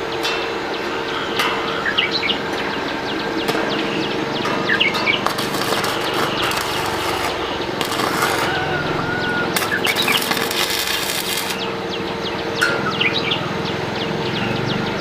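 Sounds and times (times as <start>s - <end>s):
birds chirping: 0.0s - 15.0s
steady hum: 0.0s - 15.0s
loud crackling hiss: 5.2s - 11.8s.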